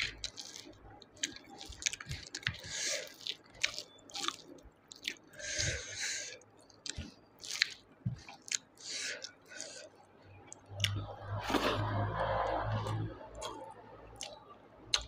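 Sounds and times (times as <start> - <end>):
soft wet chewing: 0.0 - 15.0
lip-smacking clicks: 14.2 - 15.0.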